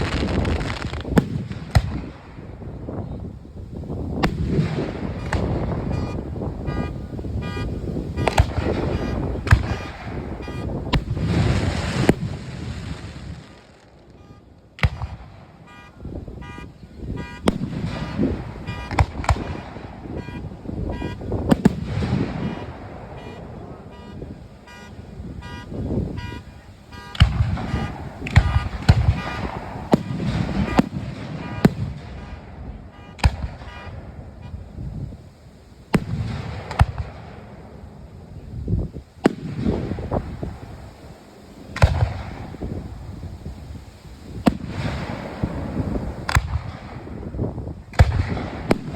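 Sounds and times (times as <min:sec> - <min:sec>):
fireworks bursting: 0:00.0 - 0:48.9
car horns honking: 0:03.0 - 0:11.2, 0:14.0 - 0:14.7, 0:15.5 - 0:36.1.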